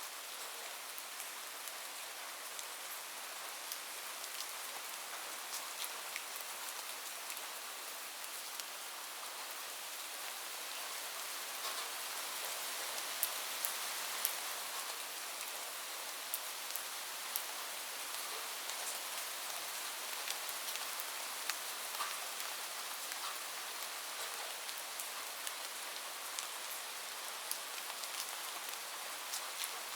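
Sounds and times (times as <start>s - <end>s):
heavy rain on a roof: 0.0s - 29.9s.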